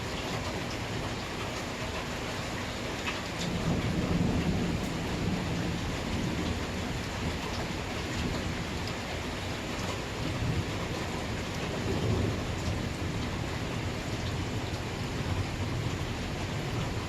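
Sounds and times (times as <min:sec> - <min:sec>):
steady rain falling: 0:00.0 - 0:17.0
thunder rumbling: 0:03.4 - 0:09.0, 0:10.1 - 0:17.0.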